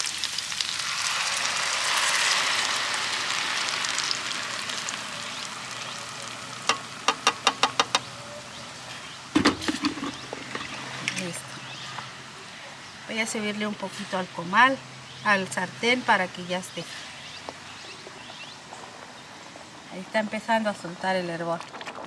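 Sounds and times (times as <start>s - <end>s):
salsa sizzling in hot oil: 0.0s - 12.3s
knock: 7.1s - 8.0s.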